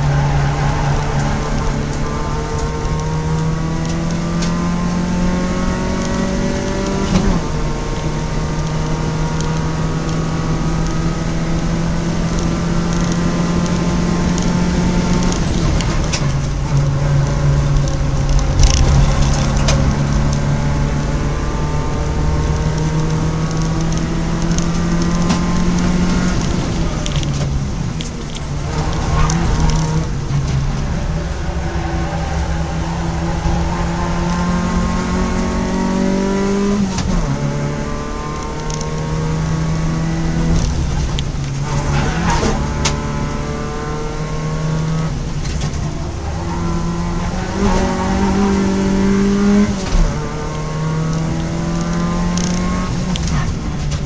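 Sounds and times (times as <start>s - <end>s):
race car engine from inside: 0.0s - 54.0s
sharp clicks: 49.9s - 54.0s.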